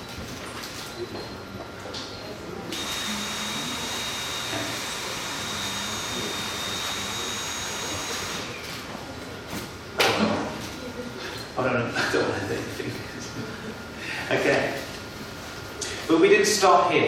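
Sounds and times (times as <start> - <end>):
cordless vacuum cleaner running: 2.7 - 8.8.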